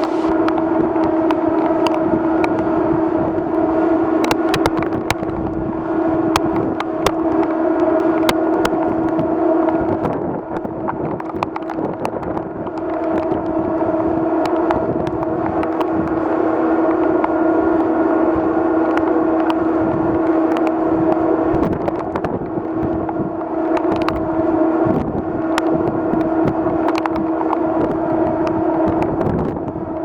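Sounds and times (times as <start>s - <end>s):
rushing noise: 0.0s - 1.0s
ferry machinery humming: 0.0s - 30.0s.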